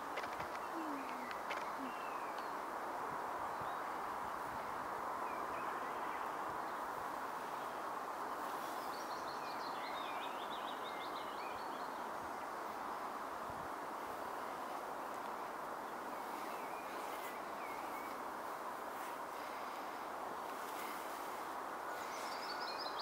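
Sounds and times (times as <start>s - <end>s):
outdoor background hiss: 0.0s - 23.0s
small bird singing: 0.2s - 2.6s, 21.9s - 23.0s
faint bird chirps: 0.4s - 2.6s, 21.8s - 23.0s.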